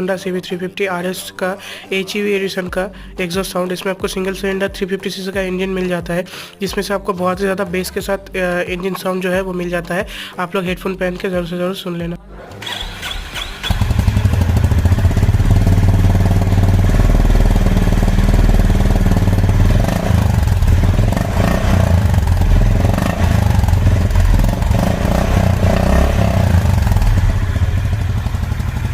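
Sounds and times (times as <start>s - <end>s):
motorcycle engine running: 12.6s - 28.9s.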